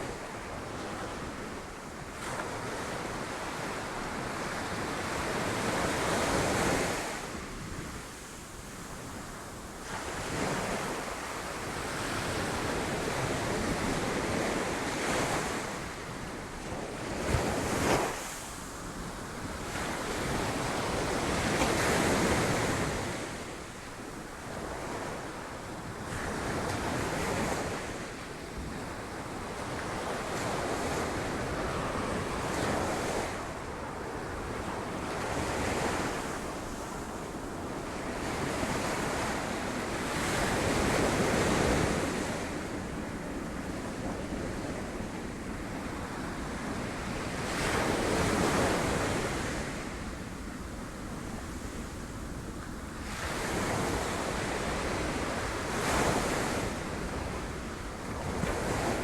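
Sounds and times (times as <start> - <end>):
wind on microphone: 24.5 - 59.0.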